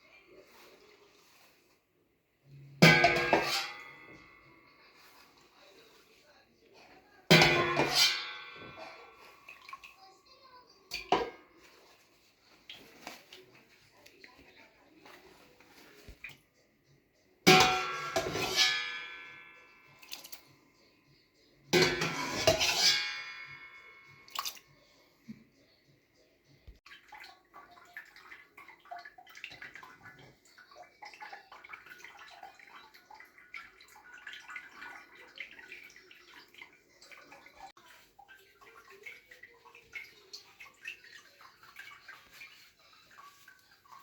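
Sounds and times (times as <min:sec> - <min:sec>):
water splashing and dripping: 0:02.5 - 0:16.4, 0:17.5 - 0:20.6, 0:21.8 - 0:24.8, 0:26.8 - 0:44.0
wet handling noises: 0:10.9 - 0:16.5.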